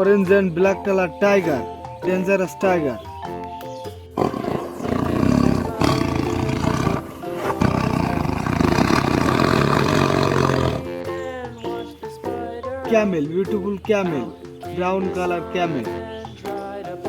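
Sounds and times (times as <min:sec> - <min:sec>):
light background music: 0:00.0 - 0:17.0
tiger roaring: 0:04.2 - 0:11.0.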